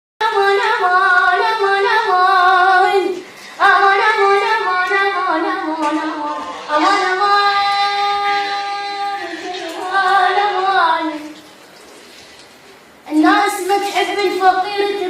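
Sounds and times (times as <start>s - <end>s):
child singing: 0.2s - 11.4s, 13.1s - 15.0s.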